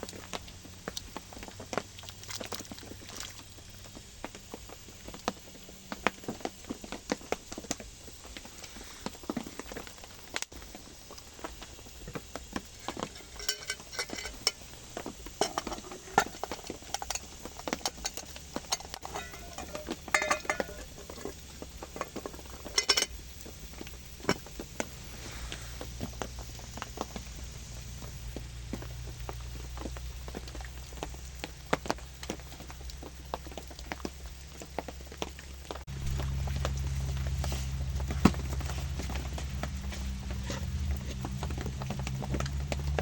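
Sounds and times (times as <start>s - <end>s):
steady low hum: 11.2s - 30.6s, 35.9s - 43.0s
metal cookware clinking and scraping: 12.7s - 23.2s.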